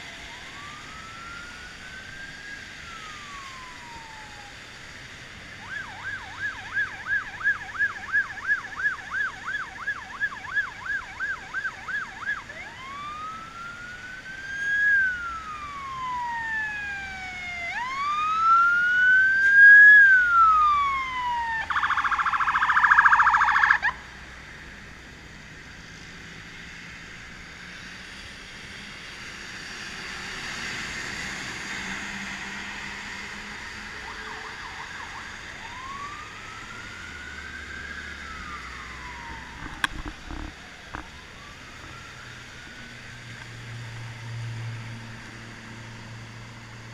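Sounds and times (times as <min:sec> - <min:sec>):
electronic siren yelping and wailing: 0:00.0 - 0:04.8, 0:05.6 - 0:24.2, 0:32.8 - 0:42.5.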